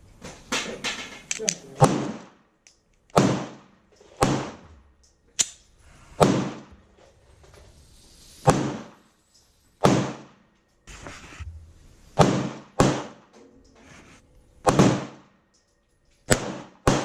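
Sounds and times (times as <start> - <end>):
gunshots with echo: 1.7 - 2.4, 3.2 - 4.6, 6.2 - 6.7, 9.8 - 10.4, 12.2 - 13.3, 14.6 - 15.4, 16.3 - 17.0.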